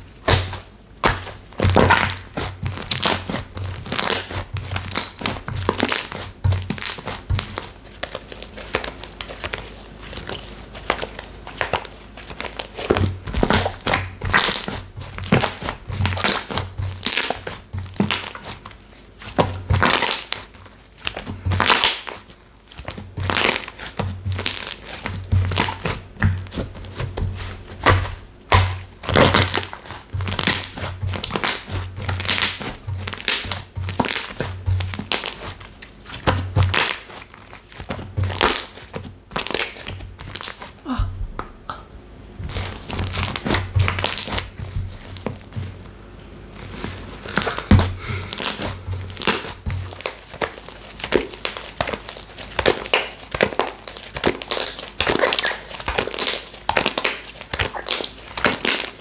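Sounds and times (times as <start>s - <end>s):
slime crackling when squeezed: 19.2s - 27.0s, 27.8s - 40.9s, 46.6s - 59.0s.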